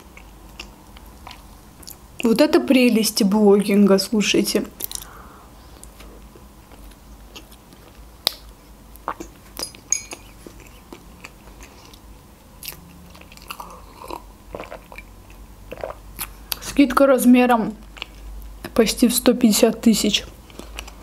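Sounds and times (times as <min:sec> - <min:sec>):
chewing with wet mouth clicks: 0:00.0 - 0:02.3, 0:06.6 - 0:16.7, 0:17.8 - 0:18.8.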